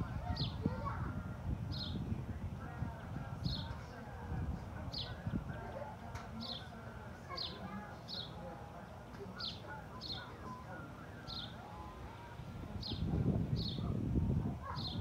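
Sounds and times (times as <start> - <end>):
faint distant voices: 0.0 - 15.0
bird chirping: 9.1 - 11.9.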